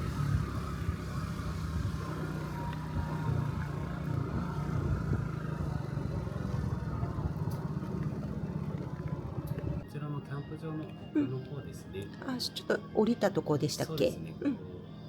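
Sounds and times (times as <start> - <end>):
scooter engine running: 0.0 - 9.8.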